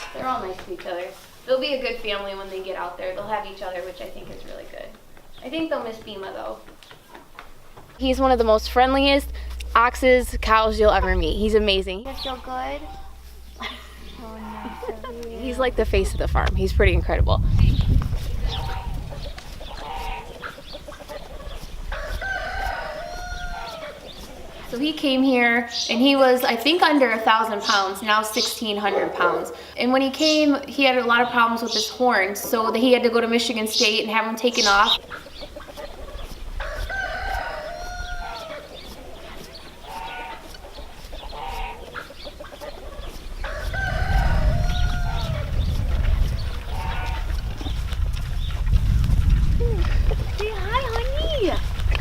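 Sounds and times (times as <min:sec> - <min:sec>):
low rumble: 0:07.5 - 0:24.8, 0:42.8 - 0:52.0
rooster crowing: 0:12.9 - 0:15.2, 0:21.8 - 0:24.6, 0:35.9 - 0:40.5, 0:42.8 - 0:45.5, 0:46.7 - 0:47.4.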